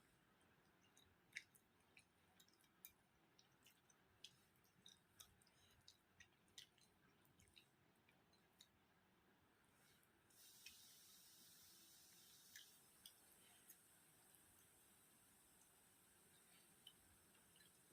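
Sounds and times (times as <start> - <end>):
person chewing food: 0.0 - 9.0.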